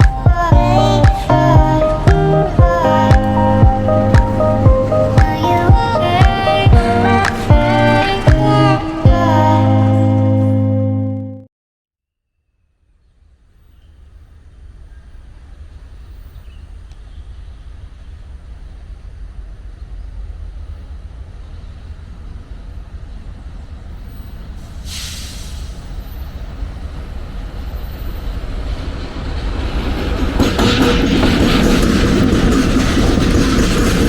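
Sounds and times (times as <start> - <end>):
train rumble: 0.0 - 10.0, 14.1 - 34.0
loud hiss: 24.6 - 26.4.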